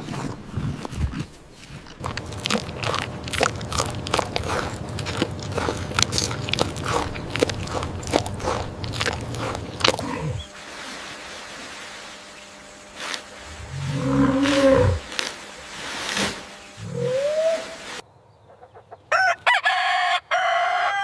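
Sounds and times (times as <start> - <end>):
crisp biting and chewing: 0.0 - 10.5, 13.1 - 16.5
low rumble: 2.0 - 10.6, 13.4 - 17.2.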